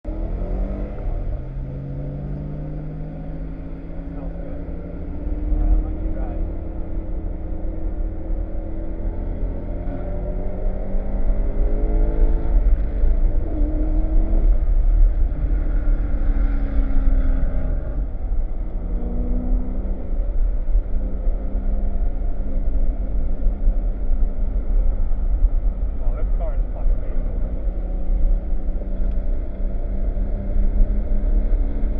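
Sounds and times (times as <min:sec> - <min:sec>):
wind and road noise: 0:00.0 - 0:31.9
car engine revving hard: 0:00.1 - 0:20.2.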